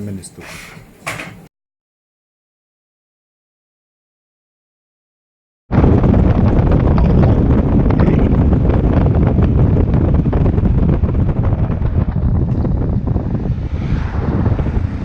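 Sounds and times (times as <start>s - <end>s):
wind buffeting microphone: 5.7s - 15.0s.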